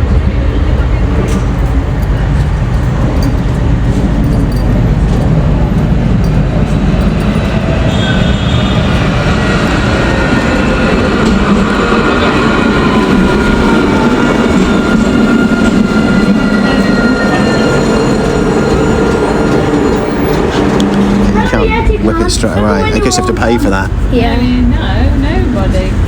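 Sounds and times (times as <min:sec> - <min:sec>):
tram rumble: 0:00.0 - 0:26.0
faint gliding wheel squeal: 0:07.4 - 0:11.0, 0:11.7 - 0:21.6.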